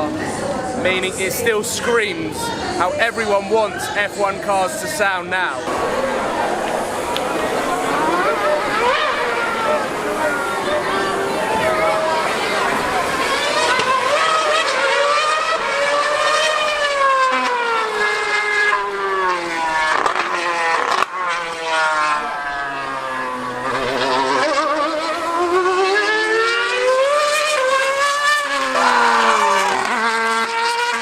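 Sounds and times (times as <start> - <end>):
racing car engine screaming: 3.7 - 31.0.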